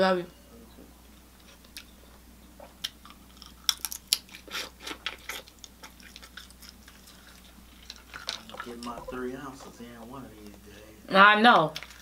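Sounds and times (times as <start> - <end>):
chewing and lip-smacking: 1.4 - 2.0, 2.6 - 9.2, 11.7 - 12.0.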